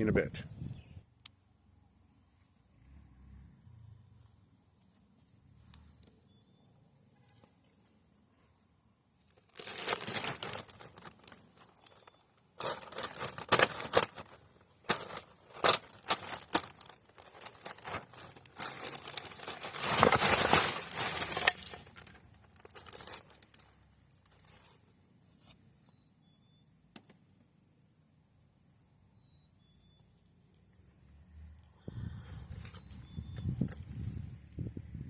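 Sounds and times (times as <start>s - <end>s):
crinkling and rustling: 9.2s - 26.0s.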